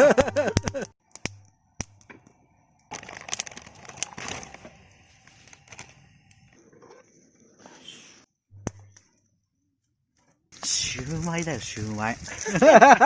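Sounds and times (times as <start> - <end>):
campfire crackling and popping: 0.0 - 6.6, 10.5 - 13.0.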